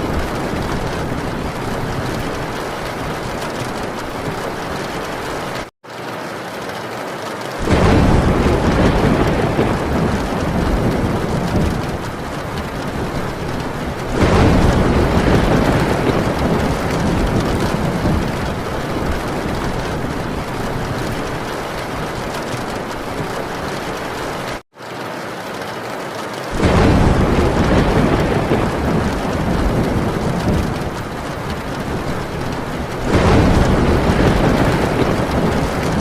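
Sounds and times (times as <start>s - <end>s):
heavy rain on a tin roof: 0.0s - 36.0s
rolls of thunder: 7.6s - 24.1s, 26.5s - 36.0s.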